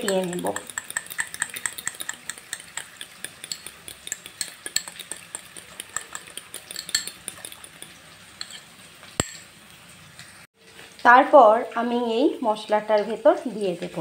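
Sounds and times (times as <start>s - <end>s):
utensil clinking against bowl: 0.0s - 9.5s.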